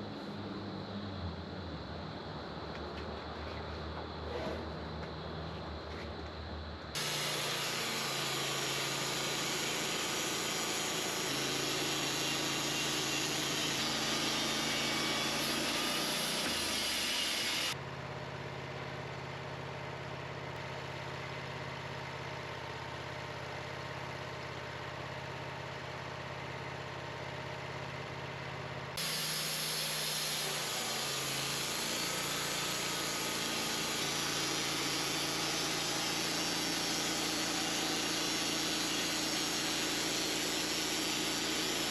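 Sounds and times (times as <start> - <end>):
sawmill engine hum: 0.0 - 41.9
saw hiss: 7.0 - 17.8, 29.0 - 41.9.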